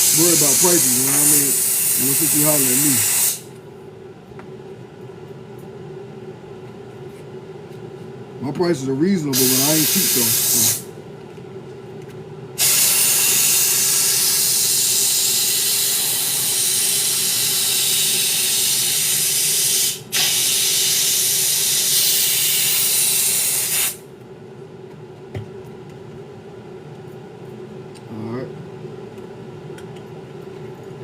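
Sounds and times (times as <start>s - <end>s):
hissing spray: 0.0s - 3.5s, 9.4s - 10.9s, 12.6s - 24.0s
steady low hum: 0.0s - 19.0s.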